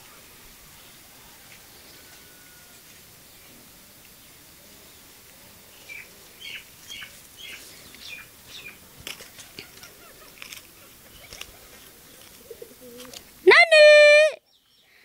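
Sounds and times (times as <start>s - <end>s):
small bird chirping: 5.7s - 13.0s.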